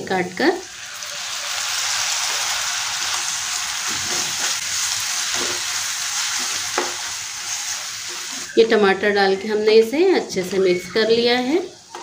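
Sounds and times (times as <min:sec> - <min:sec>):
potatoes sizzling in hot oil: 0:00.0 - 0:08.5.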